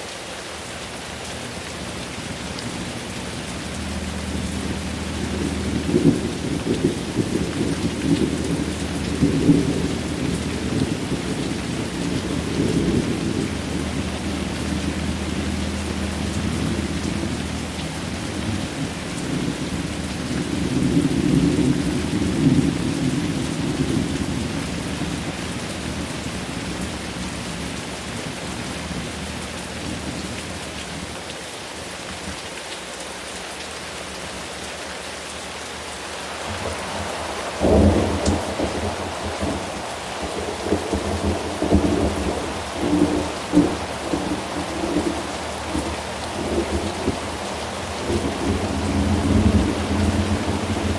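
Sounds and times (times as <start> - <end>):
steady rain: 0.0 - 50.9
rolling thunder: 3.8 - 25.4, 36.4 - 50.9.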